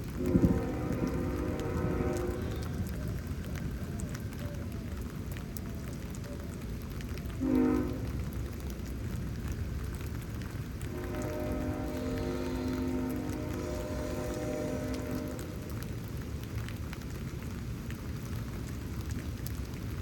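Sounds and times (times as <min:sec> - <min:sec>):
steady rain falling: 0:00.0 - 0:20.0
horn chord: 0:10.9 - 0:15.8.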